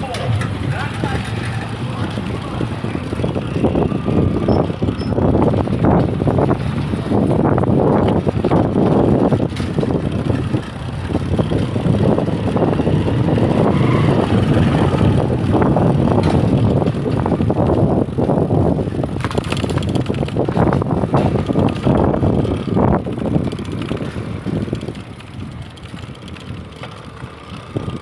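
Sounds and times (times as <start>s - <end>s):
choppy low rumble: 0.0s - 19.2s
road noise: 0.0s - 28.0s
wind rushing: 0.0s - 28.0s.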